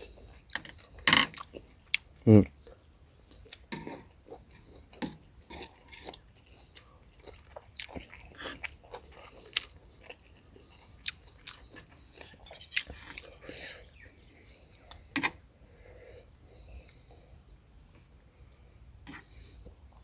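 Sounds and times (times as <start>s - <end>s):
person chewing food: 0.0s - 2.1s, 2.7s - 15.2s.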